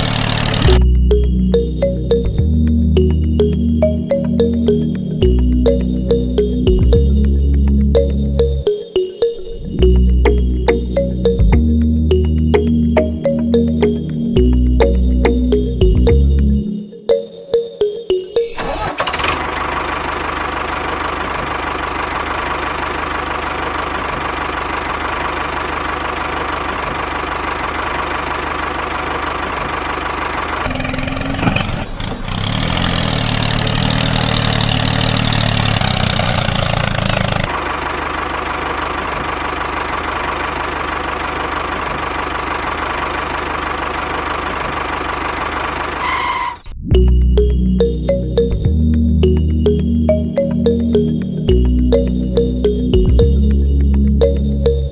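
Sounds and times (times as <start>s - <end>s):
small tractor motor running: 0.0s - 1.6s, 18.6s - 46.6s.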